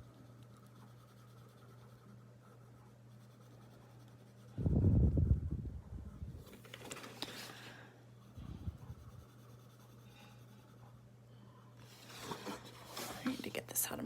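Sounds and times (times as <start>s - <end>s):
pencil colouring on paper: 0.0s - 4.6s, 8.2s - 11.0s
faint steady hum: 0.0s - 14.0s.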